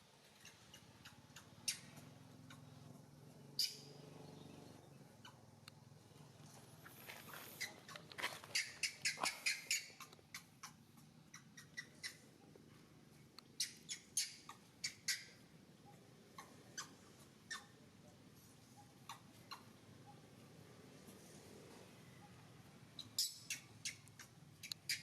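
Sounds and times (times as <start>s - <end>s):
monkey squeaking: 0.4s - 2.8s, 3.6s - 3.9s, 5.2s - 5.5s, 7.4s - 12.4s, 13.5s - 17.8s, 18.4s - 20.2s, 23.0s - 25.0s.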